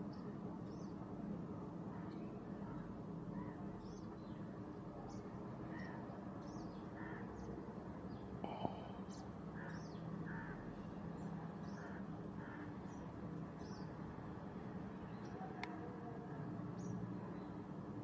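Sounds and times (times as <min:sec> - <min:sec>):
birds chirping: 0:08.1 - 0:14.0
steady low hum: 0:08.4 - 0:09.7.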